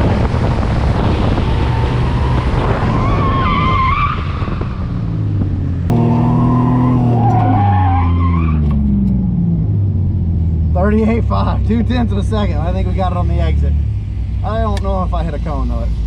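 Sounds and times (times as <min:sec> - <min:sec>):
race car engine: 0:00.0 - 0:16.0.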